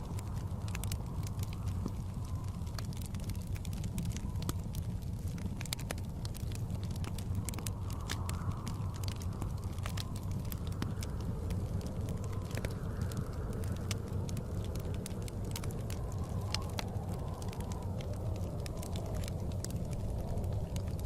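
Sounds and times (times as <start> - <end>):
low rumble of blizzard wind: 0.0 - 21.0
wood fire crackling and popping: 0.0 - 21.0.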